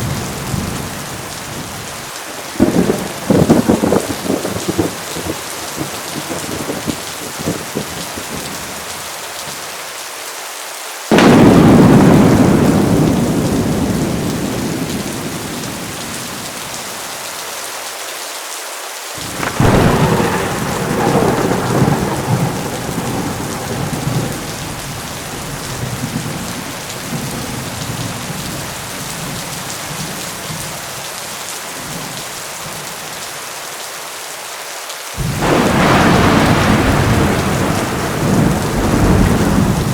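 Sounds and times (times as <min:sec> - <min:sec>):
heavy rain: 0:00.0 - 0:39.9
thunder cracking and rumbling: 0:02.5 - 0:08.8, 0:11.1 - 0:17.0, 0:19.2 - 0:29.4, 0:35.2 - 0:39.9.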